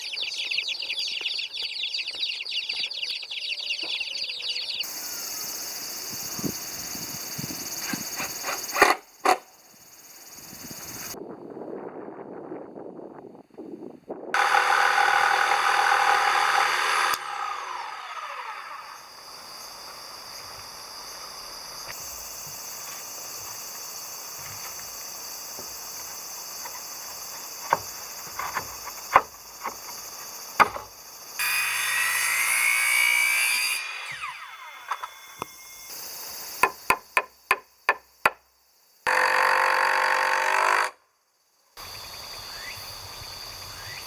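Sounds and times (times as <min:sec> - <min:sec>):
power tools cutting wood: 0:14.4 - 0:20.1, 0:31.4 - 0:35.9, 0:39.1 - 0:40.9.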